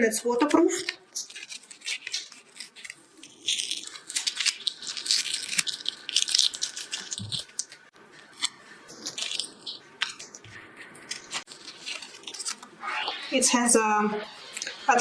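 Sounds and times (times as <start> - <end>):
foil tape crinkling and crackling: 0.4 - 12.7.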